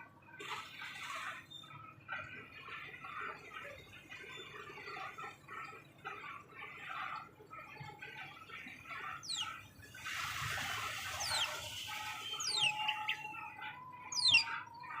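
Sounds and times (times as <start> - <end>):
chatter of lower bird calls: 0.8 - 15.0
high downward-sweeping bird chirps: 8.3 - 15.0.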